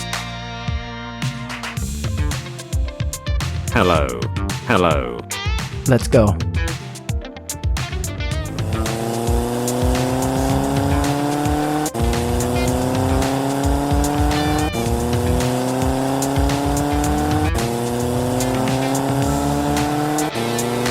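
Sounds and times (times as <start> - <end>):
music with low beat: 1.3 - 20.9
race car engine accelerating: 8.5 - 20.9.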